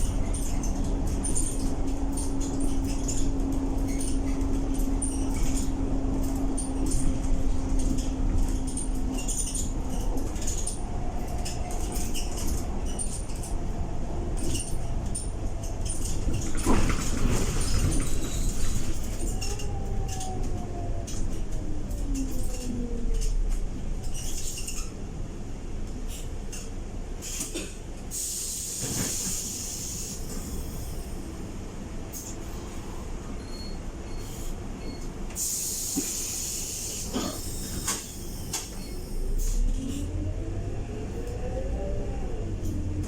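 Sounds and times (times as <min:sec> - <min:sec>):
bus engine and gearbox whine: 0:00.0 - 0:43.0
brief squeak: 0:33.4 - 0:40.0.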